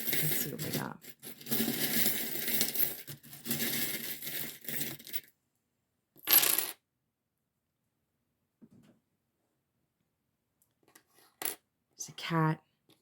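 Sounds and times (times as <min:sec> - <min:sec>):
charms clattering down: 0:00.0 - 0:05.3
charms rattling and clinking: 0:00.0 - 0:05.3.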